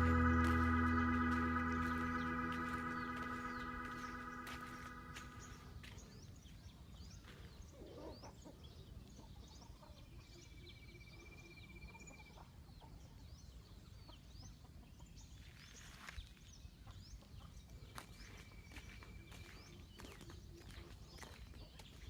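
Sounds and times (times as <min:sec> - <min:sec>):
steady trill: 0:00.0 - 0:05.7
low rumble: 0:00.0 - 0:05.8.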